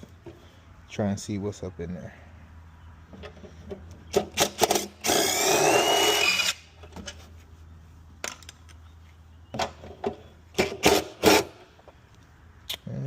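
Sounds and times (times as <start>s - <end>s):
power driver whining: 4.1s - 6.7s.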